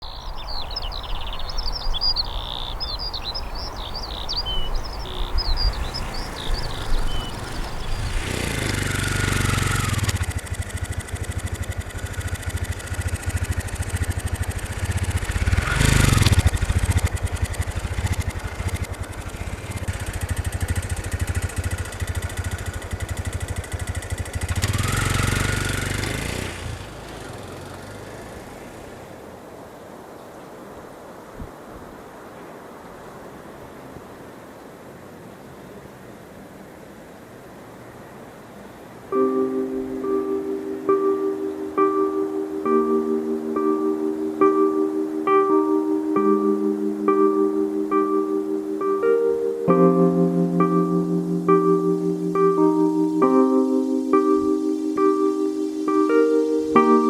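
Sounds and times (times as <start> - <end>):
birds chirping: 0.0 - 29.3, 38.2 - 57.0
low rumble of traffic: 0.0 - 57.0
vehicles driving past: 2.2 - 30.7.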